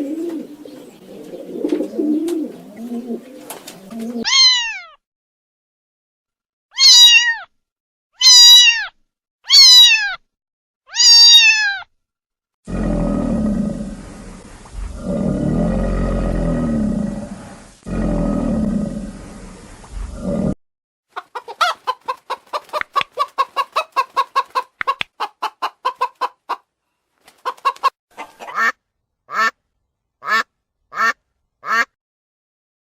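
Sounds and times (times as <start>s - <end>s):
cat meowing: 4.2s - 5.0s, 6.8s - 7.5s, 8.2s - 10.2s, 10.9s - 11.9s.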